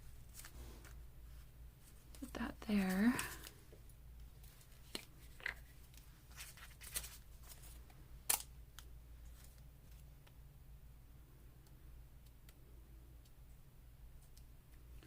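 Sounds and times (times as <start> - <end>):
paper rustling: 0.0 - 3.6, 4.3 - 7.8.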